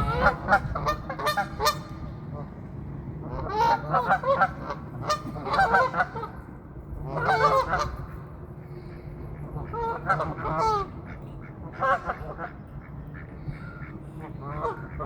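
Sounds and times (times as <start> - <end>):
geese honking: 0.0 - 2.0, 3.3 - 6.4, 7.1 - 8.0, 9.3 - 15.0.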